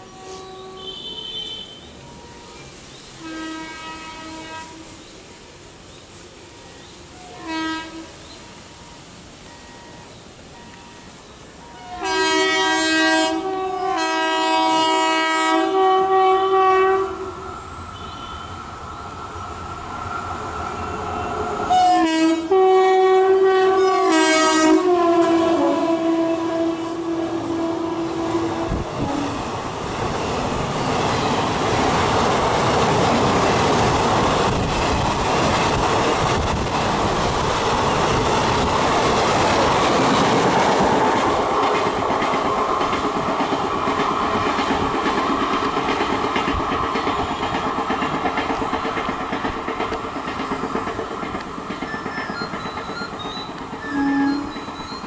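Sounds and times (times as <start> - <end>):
train horn blast: 0.0 - 2.5, 3.2 - 5.0, 7.2 - 8.2, 11.6 - 18.7, 21.7 - 29.5, 53.8 - 54.7
train coaches rushing past: 0.0 - 55.0
wheels clattering over rail joints: 29.9 - 55.0.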